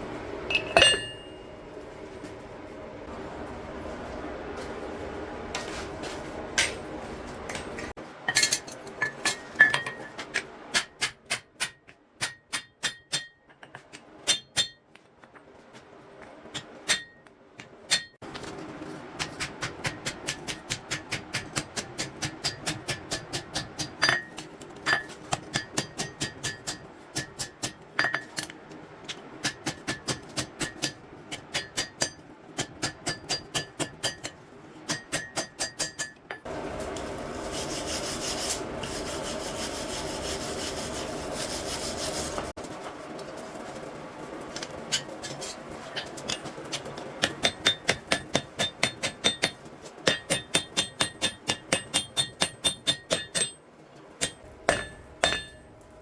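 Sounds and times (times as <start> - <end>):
hammer ringing on anvil: 0.5 - 1.7, 47.2 - 53.6, 54.2 - 55.7.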